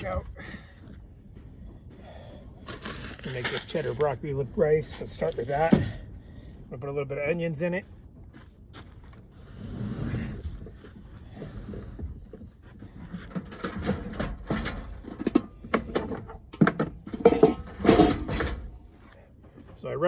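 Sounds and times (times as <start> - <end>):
cooking gear knocking and clattering: 12.9 - 18.9.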